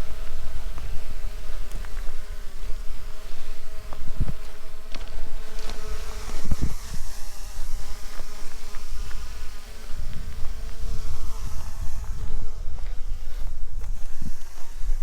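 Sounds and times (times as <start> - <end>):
drone buzzing: 0.0 - 15.0.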